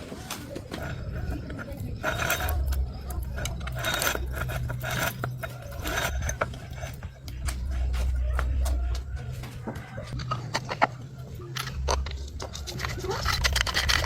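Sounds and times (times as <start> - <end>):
short rasping scrapes: 0.7 - 7.3.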